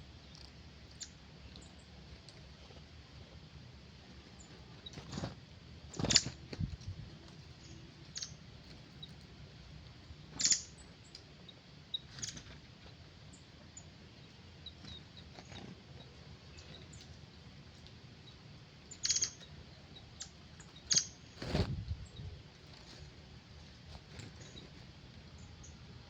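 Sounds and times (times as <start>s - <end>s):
faint bird chirps: 7.5s - 9.3s, 10.3s - 12.7s, 18.1s - 23.0s.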